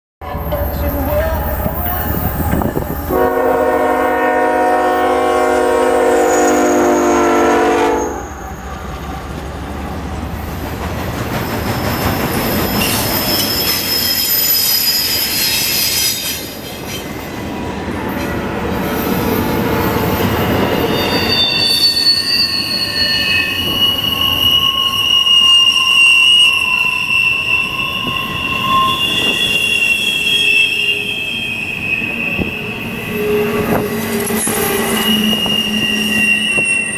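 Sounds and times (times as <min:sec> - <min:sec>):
locomotive horn: 0:00.2 - 0:08.6, 0:32.1 - 0:36.9
train cars rumbling: 0:00.2 - 0:36.9
train wheels squealing: 0:00.3 - 0:03.2, 0:06.1 - 0:07.2, 0:08.0 - 0:09.3, 0:11.2 - 0:36.9.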